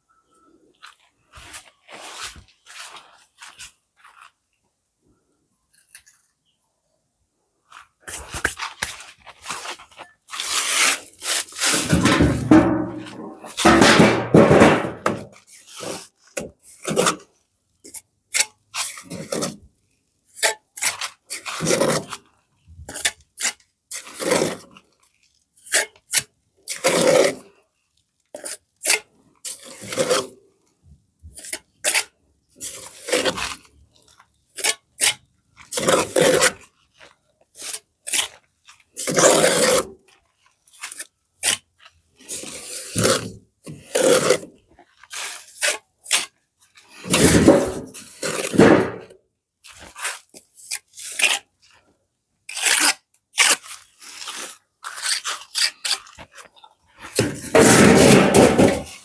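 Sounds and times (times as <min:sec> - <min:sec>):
scraping and rasping by hand: 0:08.1 - 0:17.3, 0:20.4 - 0:22.2, 0:22.8 - 0:24.9, 0:25.6 - 0:27.5, 0:28.4 - 0:30.4, 0:31.4 - 0:40.0, 0:42.2 - 0:49.1, 0:52.5 - 0:59.0.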